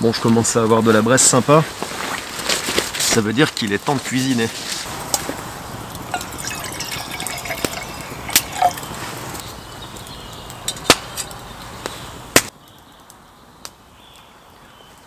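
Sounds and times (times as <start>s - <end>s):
campfire crackling and popping: 4.8s - 13.9s.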